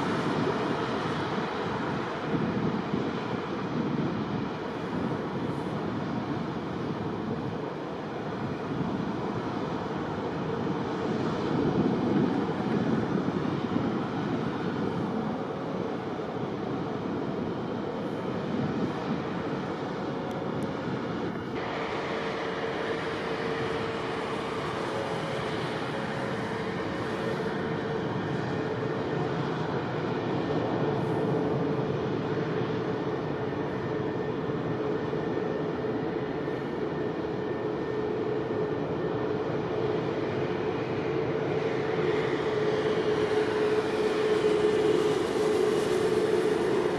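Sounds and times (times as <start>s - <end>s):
steady engine noise: 0.0s - 46.9s
faint high whine: 13.5s - 46.9s
airport machinery rushing: 41.6s - 46.9s.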